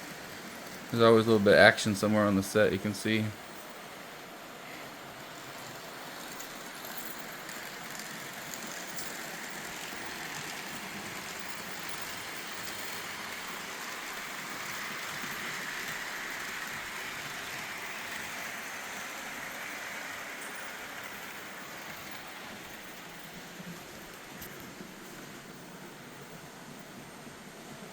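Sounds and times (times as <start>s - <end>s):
model train motors whirring: 0.0s - 27.9s.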